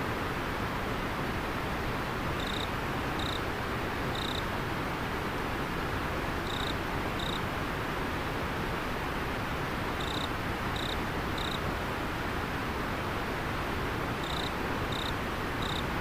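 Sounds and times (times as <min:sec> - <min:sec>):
insect chirping: 0:02.4 - 0:03.4, 0:04.1 - 0:04.4, 0:06.4 - 0:07.4, 0:10.0 - 0:11.6, 0:14.2 - 0:15.9.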